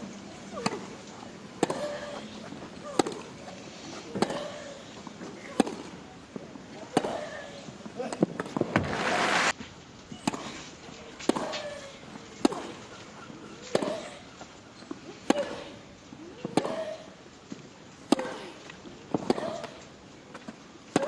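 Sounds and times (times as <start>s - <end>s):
racket hitting tennis ball: 1.6s - 2.1s, 5.4s - 6.0s, 12.4s - 12.8s, 18.1s - 18.5s
crowd applause: 8.8s - 9.5s.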